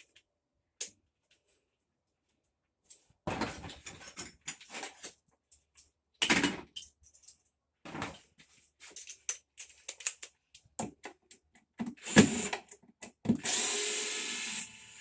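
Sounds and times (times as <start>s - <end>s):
tools and metal parts clinking: 3.3s - 10.3s.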